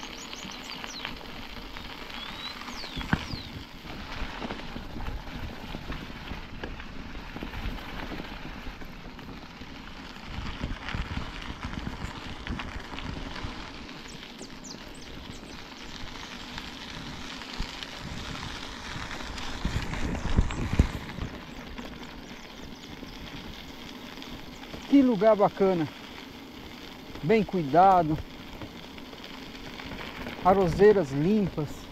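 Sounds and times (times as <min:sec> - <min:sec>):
bike rattles: 0:00.0 - 0:31.9
bike tyres crunching on rough road: 0:00.0 - 0:31.9.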